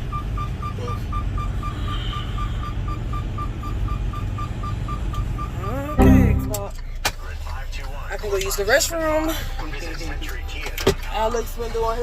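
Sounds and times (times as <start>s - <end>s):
rapid electronic warning beeps: 0.1s - 6.0s.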